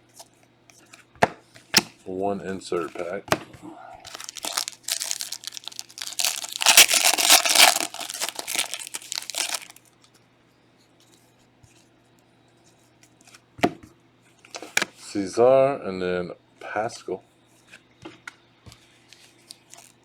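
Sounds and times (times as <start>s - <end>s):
foil wrapper tearing and crinkling: 4.1s - 9.8s.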